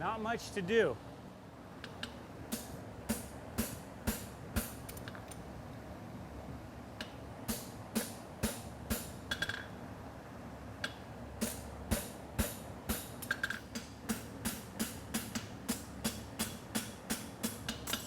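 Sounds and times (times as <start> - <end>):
cooling fan hum: 0.0 - 18.0
hammer striking horseshoe on anvil: 11.4 - 18.0.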